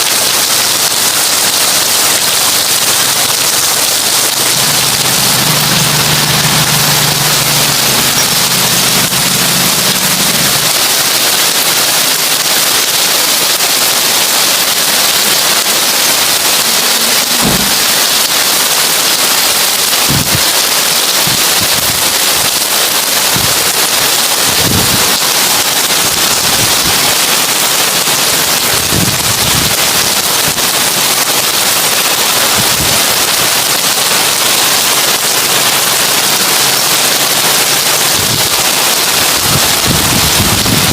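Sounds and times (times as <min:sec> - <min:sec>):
heavy rain on a tin roof: 0:00.0 - 0:40.9
deep knocks: 0:17.4 - 0:18.0.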